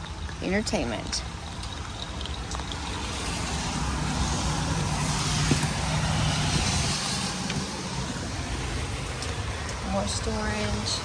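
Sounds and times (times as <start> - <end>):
vehicle driving past: 2.6 - 9.6.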